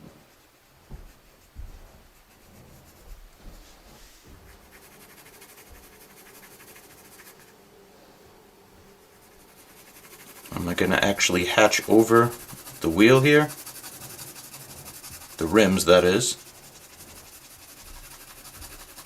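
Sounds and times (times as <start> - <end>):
pencil scratching on paper: 0.0 - 7.7, 8.8 - 19.0.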